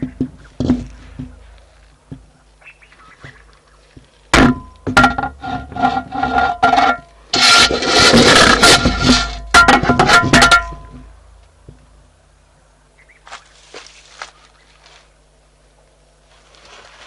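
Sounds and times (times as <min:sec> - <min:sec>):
trunk scraping a microphone: 0:04.5 - 0:11.0.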